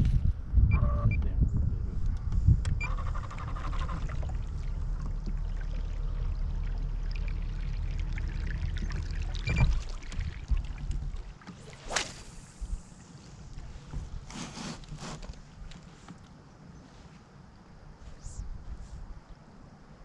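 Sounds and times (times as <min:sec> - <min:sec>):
low rumble: 0:00.0 - 0:11.4
water trickling around kayak: 0:02.7 - 0:16.8.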